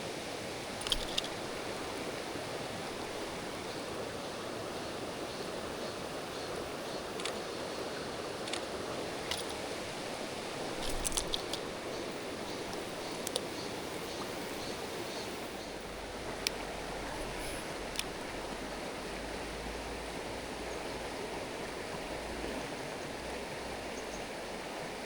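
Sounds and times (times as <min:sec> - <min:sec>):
stream water rushing: 0:00.0 - 0:25.0
sharp clicks: 0:00.8 - 0:01.4, 0:07.2 - 0:07.4, 0:08.4 - 0:09.6.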